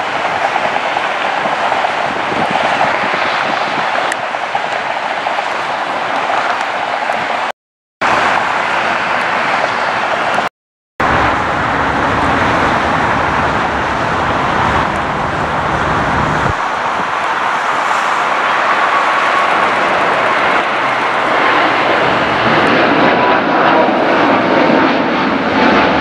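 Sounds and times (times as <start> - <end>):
loud vehicle noise roar: 8.0 - 26.0
deep rumble: 11.0 - 17.2.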